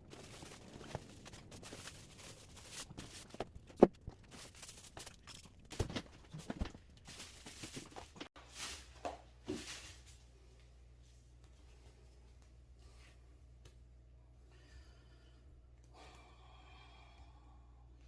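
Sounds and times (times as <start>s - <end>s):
objects being handled: 0.0s - 10.1s
low steady hum: 0.0s - 18.0s.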